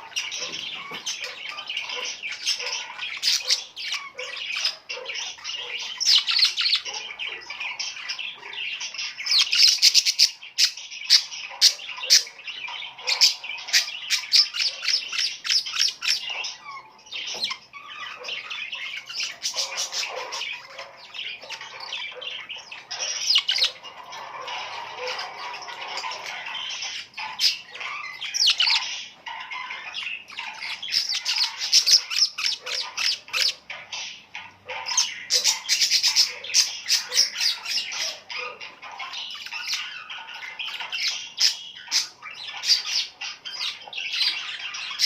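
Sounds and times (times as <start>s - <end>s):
flock of birds chirping: 0.0s - 45.0s.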